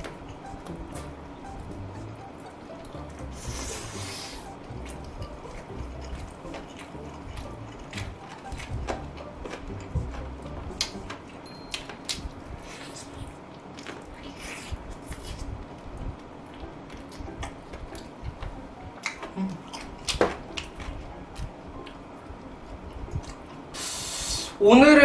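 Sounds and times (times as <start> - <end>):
chewing and biting chicken: 2.7 - 22.0.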